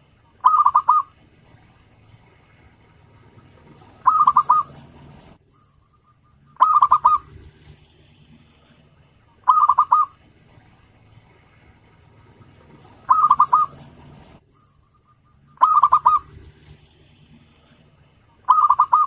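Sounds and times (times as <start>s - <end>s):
dove cooing: 0.2s - 1.6s, 2.2s - 5.4s, 6.0s - 7.8s, 8.4s - 10.6s, 11.4s - 17.8s, 18.4s - 19.0s.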